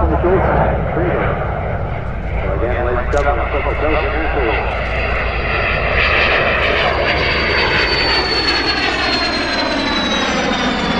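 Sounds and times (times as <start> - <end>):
jet engine whining: 0.0 - 10.9.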